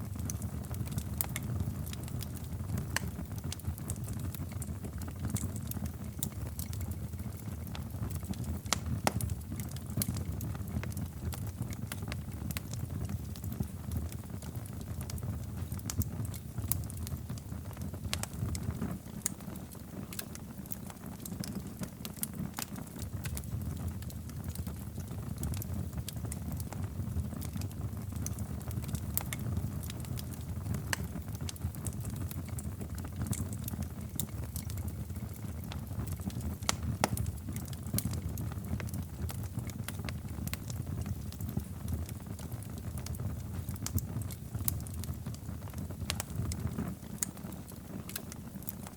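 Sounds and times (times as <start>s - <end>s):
low rumble of burning fire: 0.0s - 48.9s
wood fire crackling and popping: 0.0s - 48.9s.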